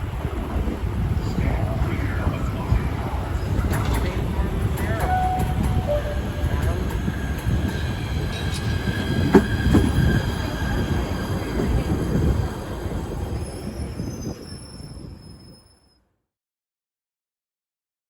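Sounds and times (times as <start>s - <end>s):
train rumbling on rails: 0.0s - 15.8s
train wheel squeal: 4.8s - 16.0s.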